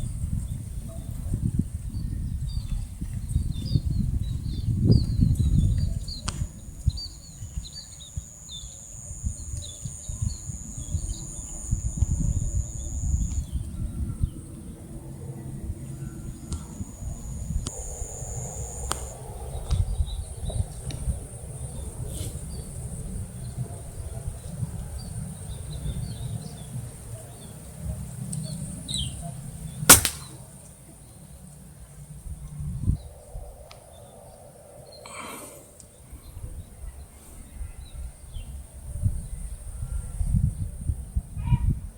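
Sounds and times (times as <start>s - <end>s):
wind rumble on microphone: 0.0s - 29.8s, 32.1s - 35.0s, 36.0s - 41.9s
small birds chirping: 2.0s - 14.8s
high insect drone: 6.5s - 13.6s, 16.2s - 21.9s
air rifle shot: 29.9s - 30.5s.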